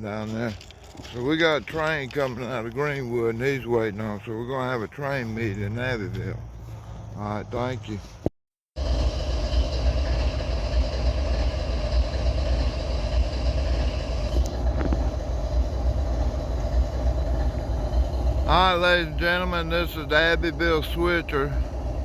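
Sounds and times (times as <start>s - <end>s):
diesel locomotive rumbling: 0.0s - 22.0s
steady hum: 8.8s - 22.0s.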